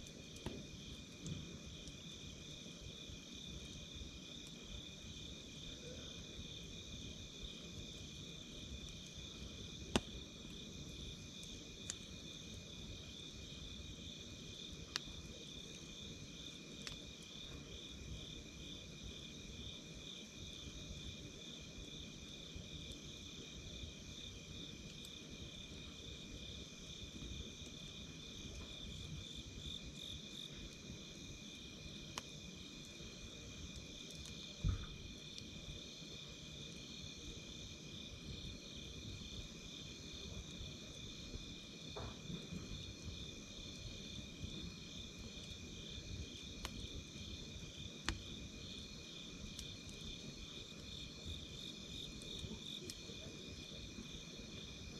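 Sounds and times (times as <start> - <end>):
campfire crackling: 0.0 - 54.9.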